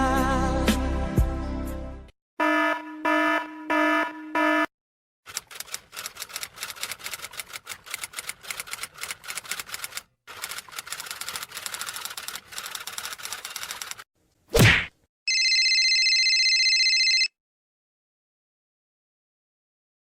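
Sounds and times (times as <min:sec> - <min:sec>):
rapid typing clicks: 0:05.3 - 0:14.0.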